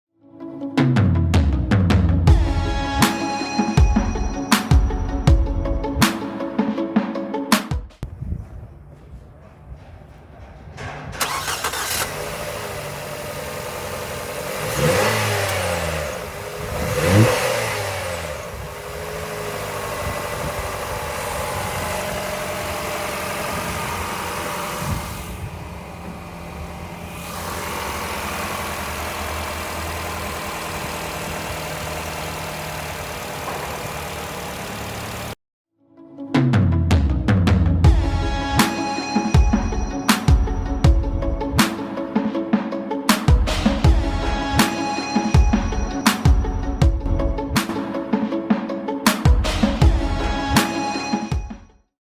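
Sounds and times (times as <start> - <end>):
car engine starting and idling: 8.8 - 35.4, 43.3 - 47.9
car engine revving: 8.9 - 35.4.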